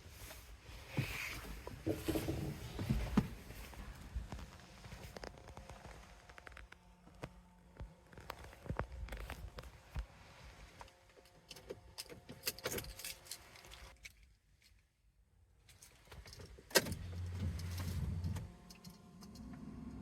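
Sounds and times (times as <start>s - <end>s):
keys clinking and rattling: 11.2s - 14.8s
car engine starting and idling: 16.4s - 20.0s.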